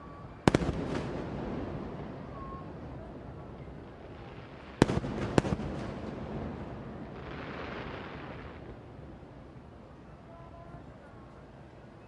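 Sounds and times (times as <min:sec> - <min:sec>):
low continuous rumble: 0:00.0 - 0:12.0
fireworks bursting: 0:00.4 - 0:08.8.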